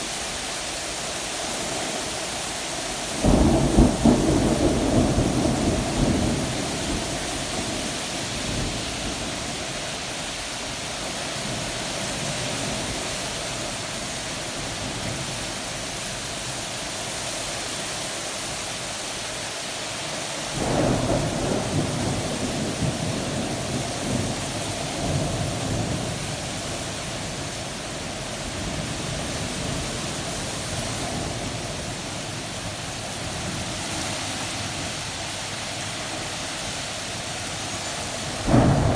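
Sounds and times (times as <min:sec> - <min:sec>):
heavy rain: 0:00.0 - 0:38.9
rolling thunder: 0:03.2 - 0:09.6, 0:20.6 - 0:29.9, 0:38.3 - 0:38.9.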